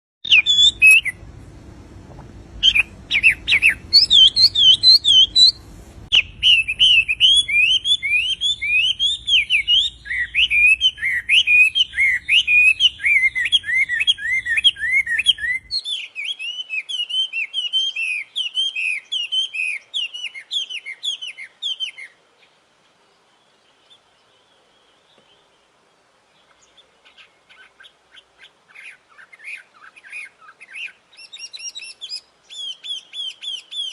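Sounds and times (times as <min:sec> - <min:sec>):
songbird whistling: 0:00.2 - 0:01.2, 0:02.6 - 0:22.1, 0:28.4 - 0:33.9.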